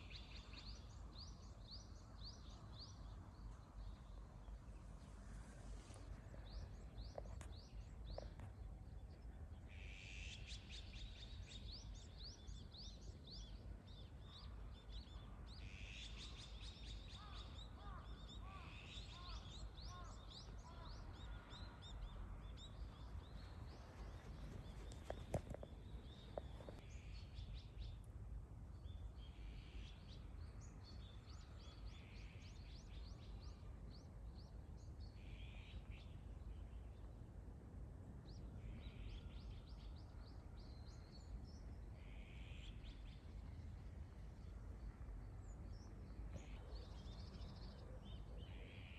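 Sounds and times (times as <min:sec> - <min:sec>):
small birds chirping: 0:15.6 - 0:28.0.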